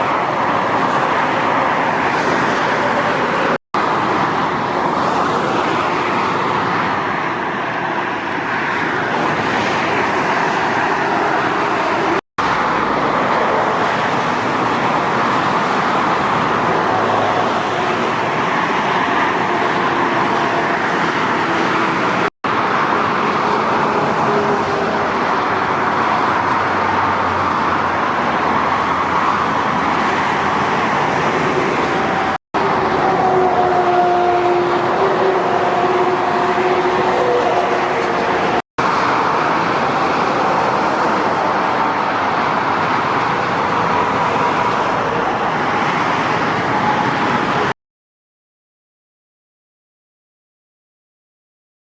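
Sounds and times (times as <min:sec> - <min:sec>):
motorway traffic rushing past: 0:00.0 - 0:47.8.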